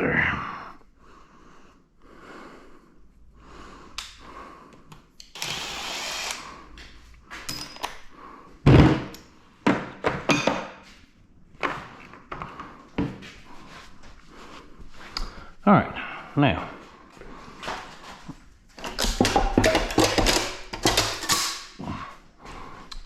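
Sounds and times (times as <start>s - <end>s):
metal parts clanking: 18.8s - 21.8s.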